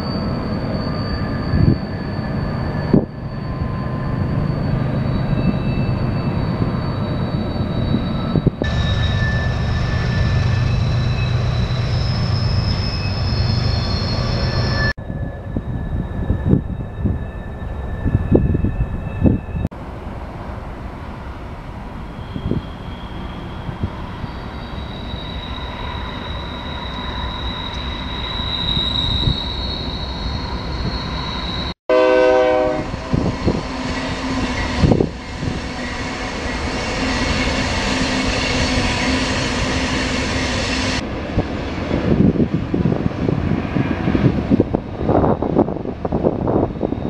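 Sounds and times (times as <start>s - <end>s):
high wheel squeal: 0.0s - 19.7s, 21.9s - 41.0s, 43.6s - 47.0s
diesel locomotives rumbling: 0.0s - 47.0s
train horn blast: 31.9s - 35.0s.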